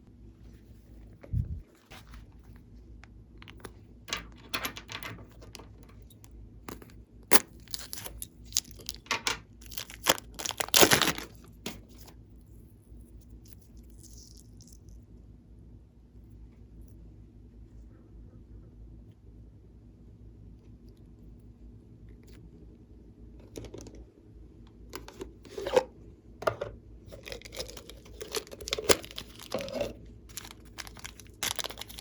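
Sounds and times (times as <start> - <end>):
slime squishing with sticky crackles: 7.4 - 12.0, 13.2 - 15.0, 27.1 - 32.0.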